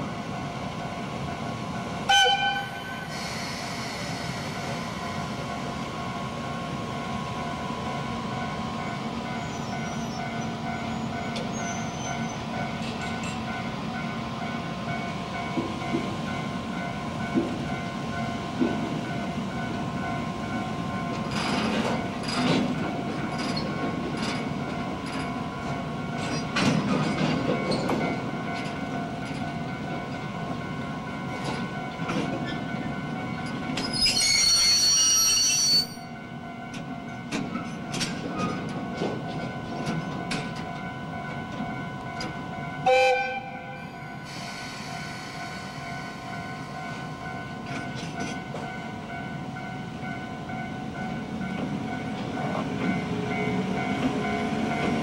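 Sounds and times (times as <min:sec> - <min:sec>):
loud high-pitched shriek: 0:33.9 - 0:36.0.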